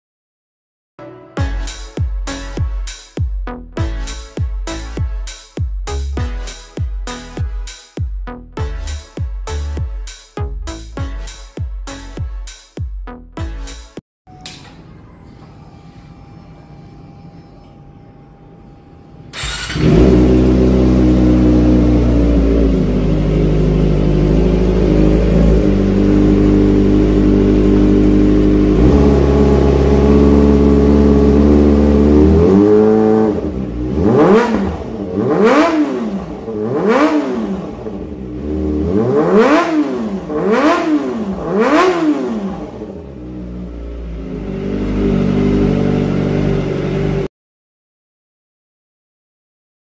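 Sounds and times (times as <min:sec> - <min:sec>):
motorcycle engine idling and revving: 0:19.4 - 0:47.3.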